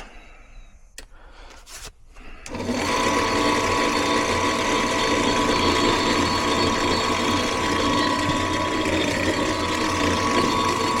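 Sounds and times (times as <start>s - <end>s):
motor switching on: 2.5s - 11.0s
motor whine: 2.5s - 11.0s
rough motor noise: 2.5s - 11.0s.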